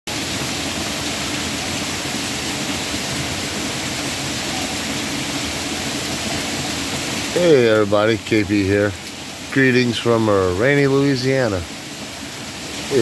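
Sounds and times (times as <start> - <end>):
steady rainfall: 0.0 - 13.0
water running off roof: 0.1 - 13.0.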